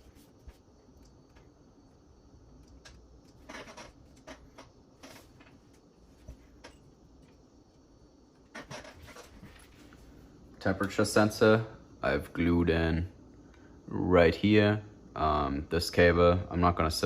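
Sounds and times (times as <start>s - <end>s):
rustles of hands handling wiring: 2.5s - 7.5s.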